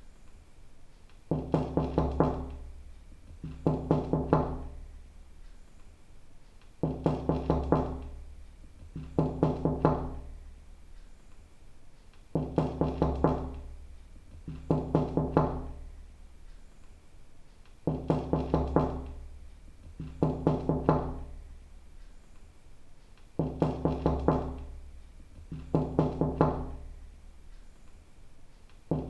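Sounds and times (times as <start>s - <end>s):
knocking on wooden door: 1.3s - 4.8s, 6.8s - 10.4s, 12.3s - 15.9s, 17.9s - 21.4s, 23.4s - 24.8s, 25.4s - 26.9s.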